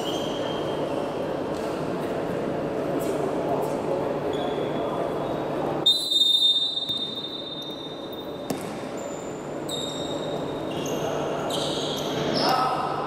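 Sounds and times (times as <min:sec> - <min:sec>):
shoe squeaks on gym floor: 0:00.0 - 0:01.1, 0:04.3 - 0:12.7
referee's whistle blast: 0:05.8 - 0:07.7
basketball thump: 0:08.5 - 0:08.8.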